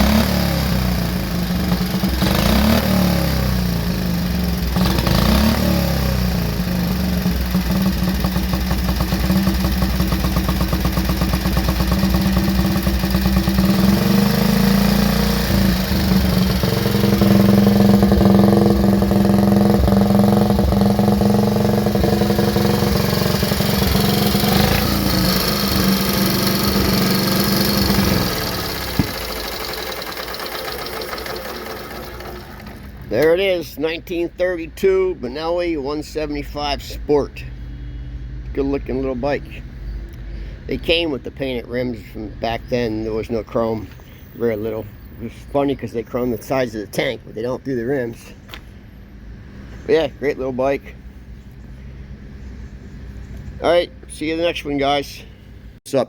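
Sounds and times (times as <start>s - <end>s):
motorcycle engine running: 0.0s - 33.4s.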